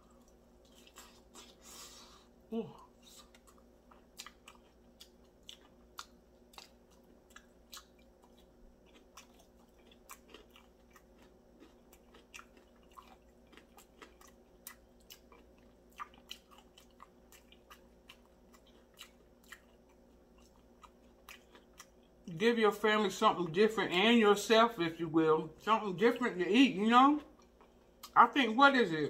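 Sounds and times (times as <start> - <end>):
low steady hum: 0.0 - 29.0
wet chewing and mouth clicks: 2.9 - 22.2.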